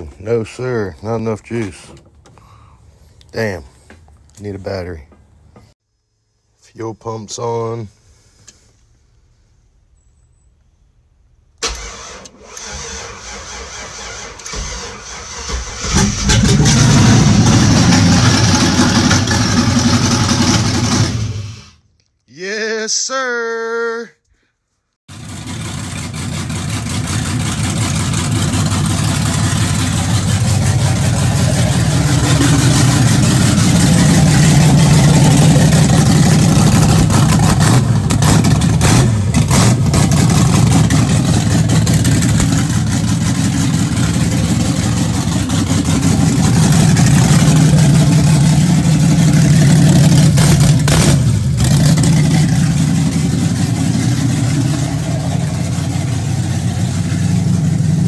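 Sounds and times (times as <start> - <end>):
loud engine running without exhaust: 15.4 - 21.7, 25.1 - 58.0.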